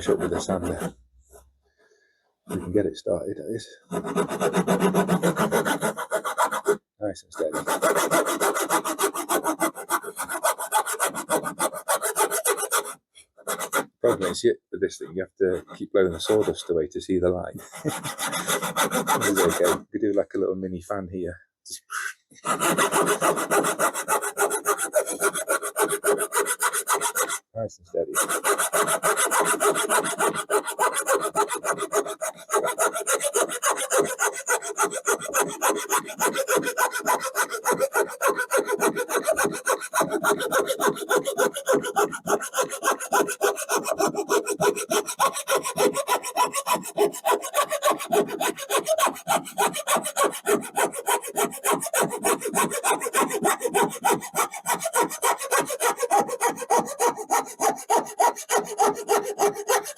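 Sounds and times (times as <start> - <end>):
hand saw cutting wood: 0.0 - 1.4, 2.5 - 16.7, 17.6 - 19.9, 21.9 - 59.9.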